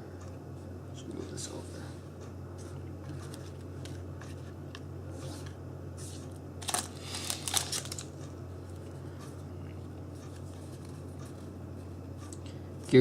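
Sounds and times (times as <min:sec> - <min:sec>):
low steady hum: 0:00.0 - 0:13.0
trading cards crinkling: 0:06.6 - 0:08.9.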